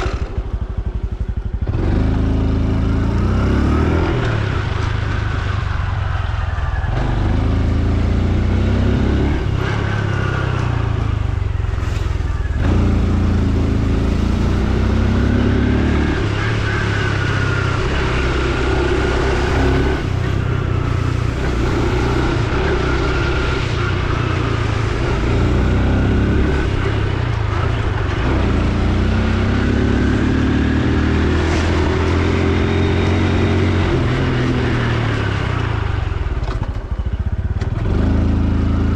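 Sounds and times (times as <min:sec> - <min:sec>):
steady rushing noise: 0:00.0 - 0:29.0
motorcycle engine accelerating: 0:00.0 - 0:38.9.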